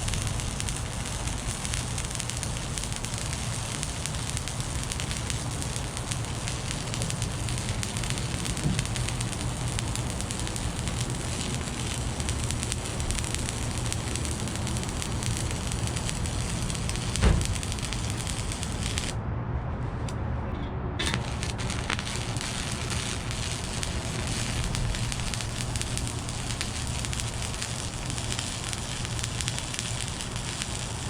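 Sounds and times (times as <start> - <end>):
welding arc crackling hiss: 0.0 - 19.2, 21.0 - 31.0
low hum: 0.0 - 30.1
thump: 8.6 - 9.0, 17.1 - 17.8.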